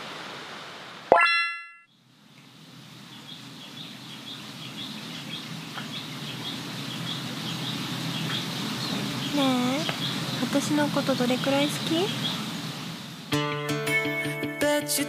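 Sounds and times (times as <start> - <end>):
bright ringing tone: 1.1 - 1.9
low outdoor hum: 1.8 - 13.3
birds chirping: 3.0 - 13.3.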